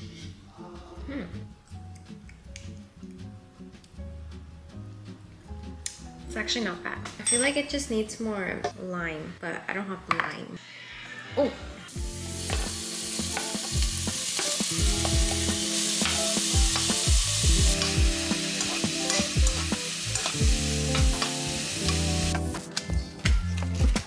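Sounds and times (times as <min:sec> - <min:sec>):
shrimp sizzling in hot oil: 0:11.9 - 0:22.6.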